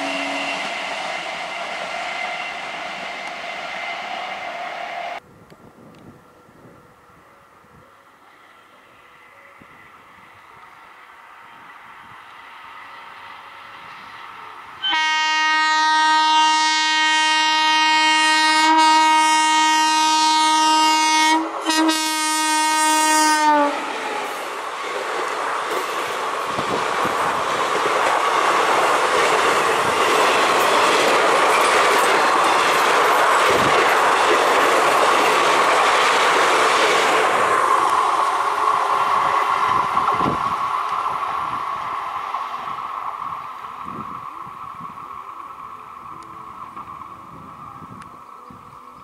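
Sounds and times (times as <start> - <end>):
train horn blasts: 0.0 - 5.2, 14.8 - 23.9
train wheels clacking on rails: 23.8 - 45.4.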